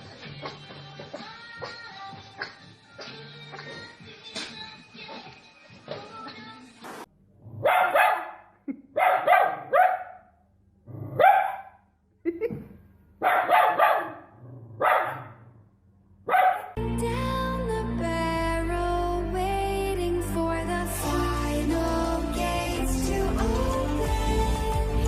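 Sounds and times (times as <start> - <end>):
music: 0.0 - 7.0, 16.8 - 25.0
dog barking: 7.6 - 10.3, 11.0 - 11.8, 13.2 - 15.4, 16.3 - 16.8.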